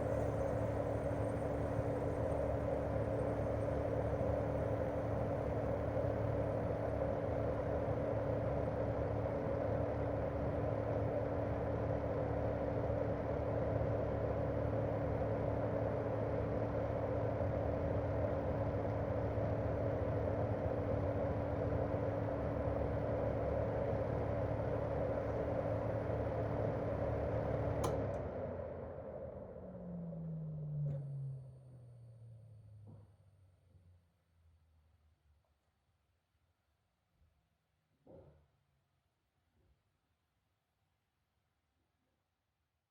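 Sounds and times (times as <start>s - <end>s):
air conditioner click: 27.8s - 28.2s.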